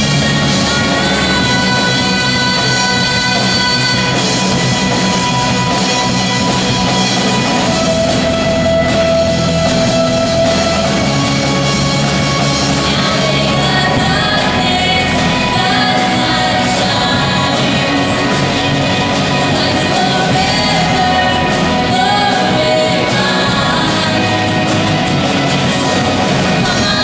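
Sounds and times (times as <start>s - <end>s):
person singing: 0.0s - 5.8s, 12.6s - 27.0s
rock band playing: 0.0s - 27.0s.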